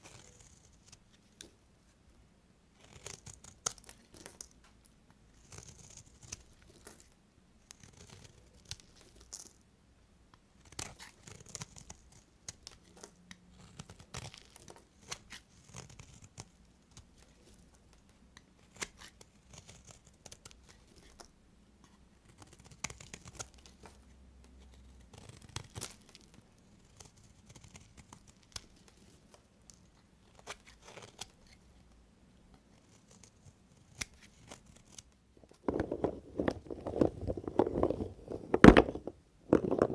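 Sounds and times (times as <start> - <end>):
knife cutting soap: 0.0 - 1.6, 2.8 - 4.6, 5.4 - 9.5, 10.6 - 17.7, 18.4 - 29.2, 29.8 - 31.7, 32.7 - 39.9.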